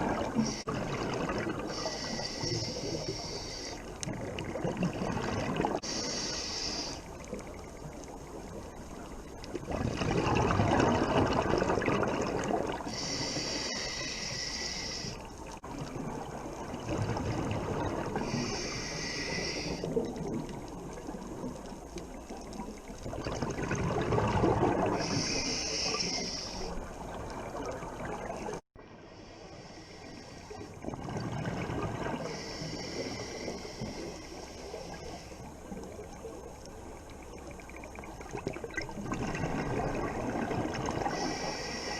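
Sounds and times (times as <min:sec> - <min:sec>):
high hiss of inhale: 0:01.7 - 0:03.9, 0:05.8 - 0:07.1, 0:12.9 - 0:15.5, 0:18.2 - 0:19.9, 0:25.0 - 0:26.8, 0:29.1 - 0:30.8, 0:32.2 - 0:35.6, 0:41.0 - 0:41.9.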